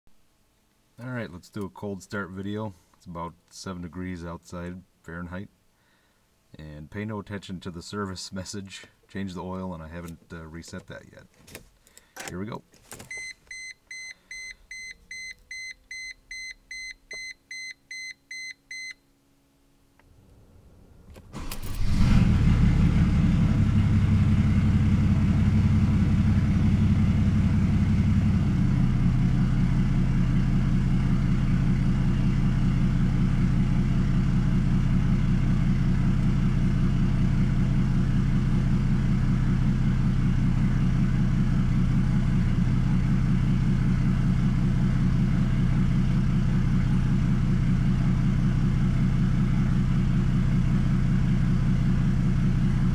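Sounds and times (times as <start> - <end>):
diesel engine cranking and starting: 20.0 - 52.9
diesel engine idling: 20.1 - 52.9.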